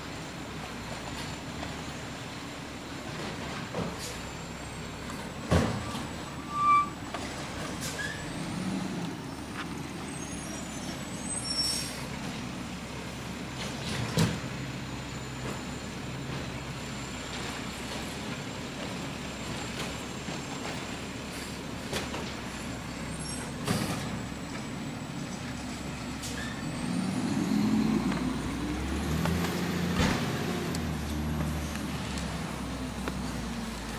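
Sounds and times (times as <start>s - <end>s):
garbage truck engine running: 0.0s - 33.9s.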